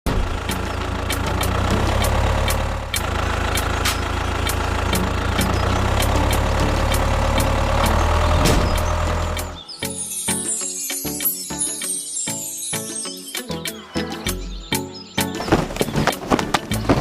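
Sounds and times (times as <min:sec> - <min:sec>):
engine rumbling: 0:00.0 - 0:09.6, 0:15.4 - 0:17.0
sharp clicks: 0:00.4 - 0:09.6.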